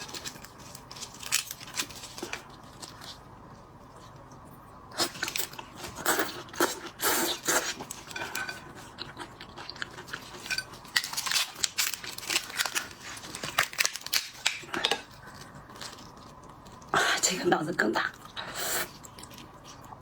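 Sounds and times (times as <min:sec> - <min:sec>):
shrimp shells cracking and chewing: 0:00.0 - 0:04.4, 0:05.0 - 0:16.9, 0:18.9 - 0:20.0.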